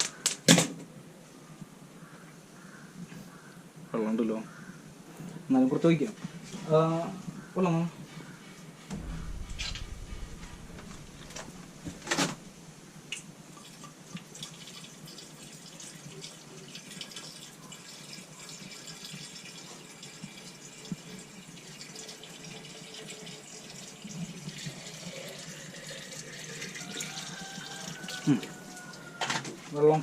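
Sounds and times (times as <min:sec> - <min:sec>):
sharp knock: 0:08.9 - 0:12.7.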